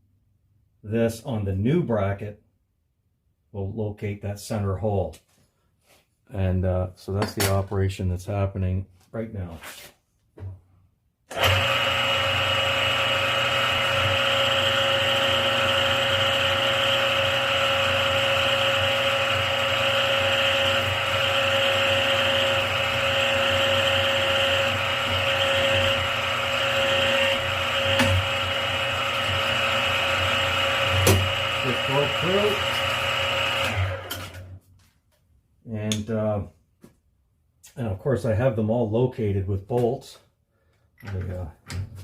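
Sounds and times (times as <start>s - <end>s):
drilling machine running: 11.3s - 34.5s.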